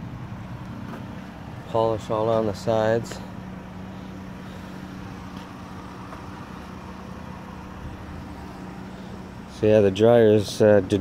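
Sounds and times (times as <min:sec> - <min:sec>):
outdoor background noise: 0:00.0 - 0:11.0
vehicle engine idling: 0:00.0 - 0:11.0.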